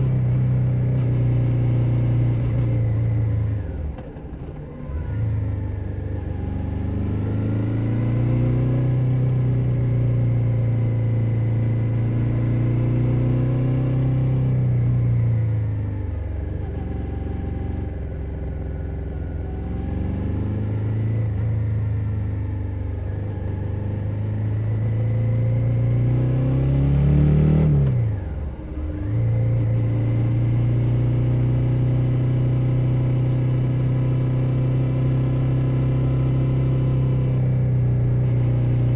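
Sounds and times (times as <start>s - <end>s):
motorcycle engine revving: 5.2s - 15.9s, 19.4s - 38.9s.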